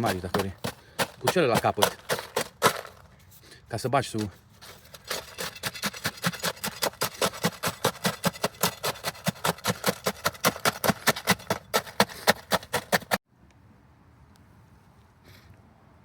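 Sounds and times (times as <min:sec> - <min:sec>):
hand tool strokes: 0:00.0 - 0:13.2.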